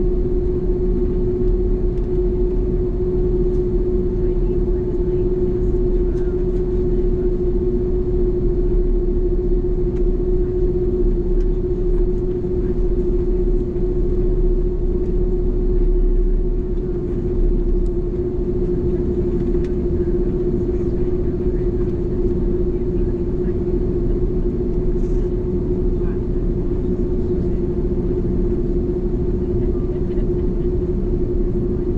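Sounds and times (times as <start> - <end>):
airplane cabin rumble: 0.0 - 31.9
mid-pitched hum: 0.0 - 31.9.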